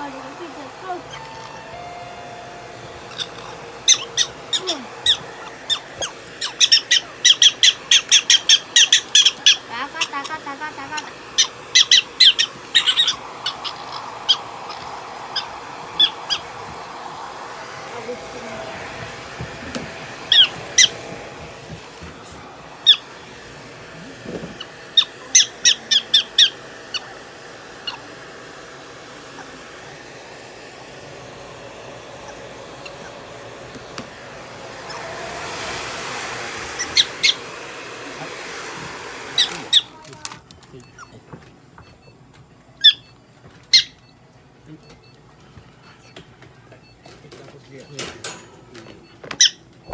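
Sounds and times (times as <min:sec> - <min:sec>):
prairie dog squeaking calls: 0:00.0 - 0:16.7, 0:20.3 - 0:21.1, 0:21.7 - 0:23.1, 0:24.5 - 0:27.1, 0:27.8 - 0:28.1, 0:32.2 - 0:33.3, 0:36.8 - 0:37.5, 0:39.3 - 0:41.3, 0:42.8 - 0:44.1, 0:49.4 - 0:49.9
hair dryer blowing: 0:00.0 - 0:42.0.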